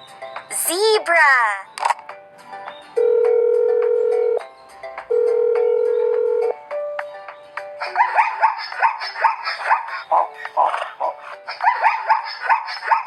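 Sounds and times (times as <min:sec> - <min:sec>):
short yelping animal calls: 0:07.8 - 0:13.0.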